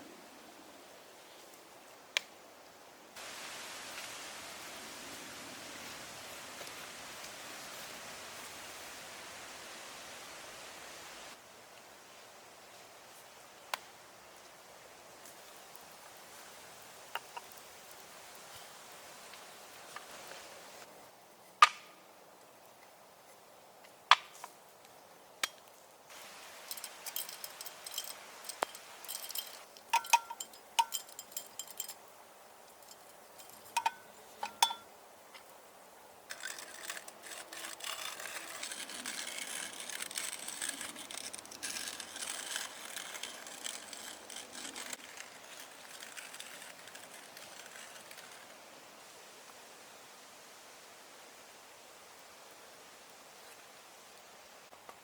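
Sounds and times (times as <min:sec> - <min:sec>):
steady hiss: 0:00.0 - 0:55.0
light clinks: 0:26.6 - 0:34.9.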